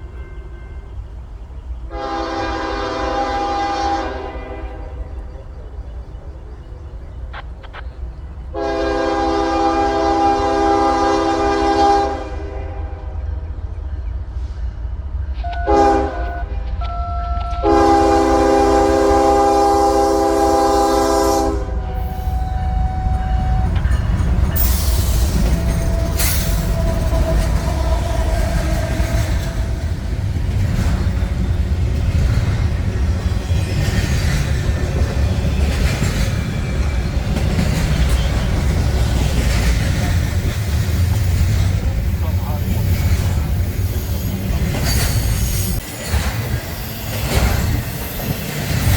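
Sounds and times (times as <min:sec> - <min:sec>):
train rumble and wheel clatter: 0:00.0 - 0:48.9
locomotive air horn: 0:01.9 - 0:05.0, 0:08.5 - 0:13.2, 0:15.4 - 0:30.0.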